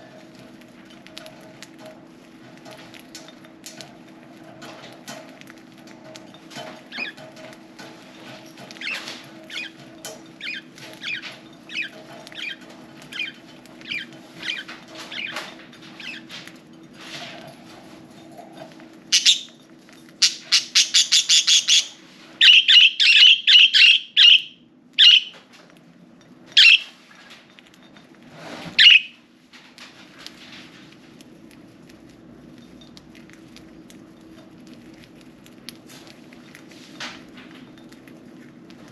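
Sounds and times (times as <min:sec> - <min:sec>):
budgerigars chirping: 0:19.2 - 0:19.5, 0:20.2 - 0:25.4, 0:26.6 - 0:26.9, 0:28.8 - 0:29.2.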